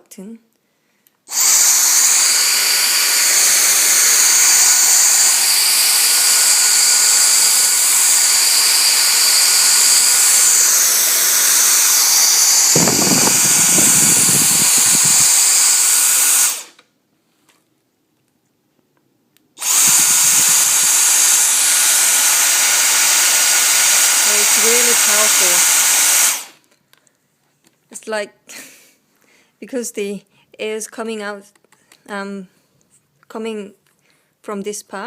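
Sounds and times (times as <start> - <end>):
vacuum motor whining: 1.3 - 16.8, 19.6 - 26.6.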